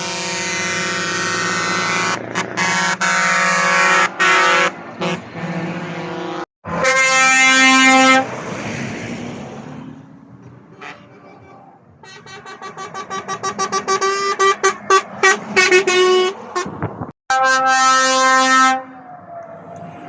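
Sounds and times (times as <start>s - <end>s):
truck air horn blasts: 0.0s - 8.3s, 10.7s - 19.0s.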